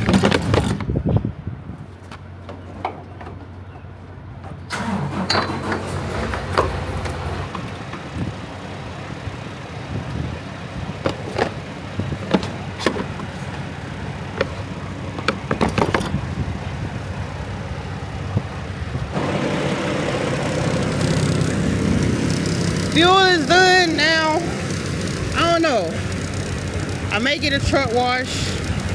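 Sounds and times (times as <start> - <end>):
diesel truck engine idling: 3.5 - 28.9
scattered clicks and knocks: 15.2 - 16.2.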